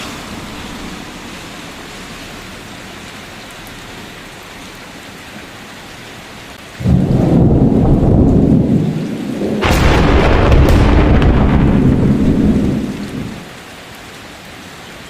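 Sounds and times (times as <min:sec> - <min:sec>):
steady rain falling: 0:00.0 - 0:15.0
loud low thunderclap: 0:06.8 - 0:13.4.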